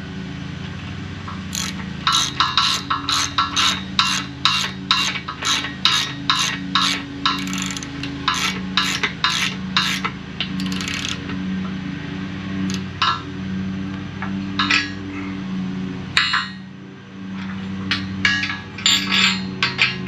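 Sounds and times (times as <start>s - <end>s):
steady low hum: 0.0s - 19.7s
tools and metal parts knocking: 1.5s - 11.4s, 14.6s - 15.0s, 17.4s - 20.0s.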